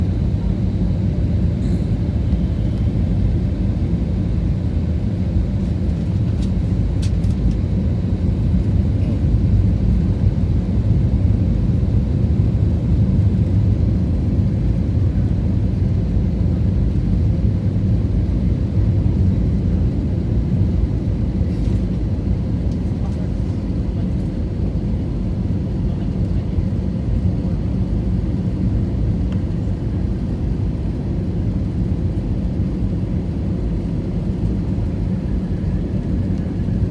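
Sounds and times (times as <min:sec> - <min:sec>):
airliner cabin engine rumble: 0:00.0 - 0:36.9.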